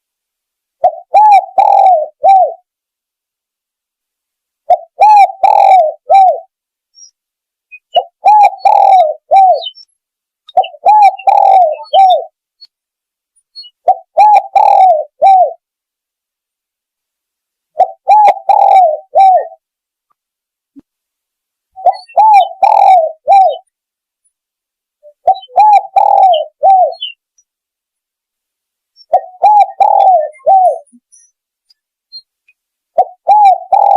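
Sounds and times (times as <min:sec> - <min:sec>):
dove cooing: 0:00.8 - 0:02.7, 0:04.7 - 0:06.5, 0:07.9 - 0:09.8, 0:10.5 - 0:12.4, 0:13.8 - 0:15.6, 0:17.8 - 0:19.6, 0:21.8 - 0:23.6, 0:25.0 - 0:27.2, 0:29.0 - 0:31.0, 0:33.0 - 0:33.9.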